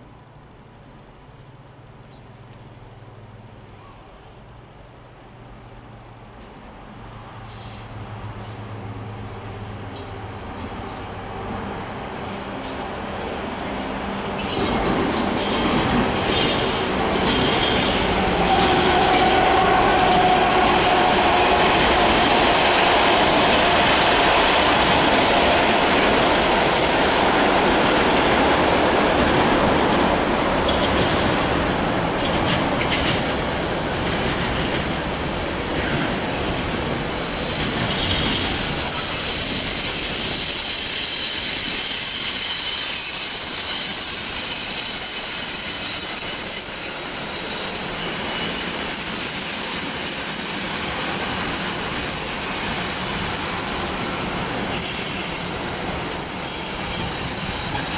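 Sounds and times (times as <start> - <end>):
diesel locomotive engine: 0.0 - 57.9
train wagons rumbling and clattering: 6.2 - 57.9
high-pitched wheel squeal: 25.0 - 57.9.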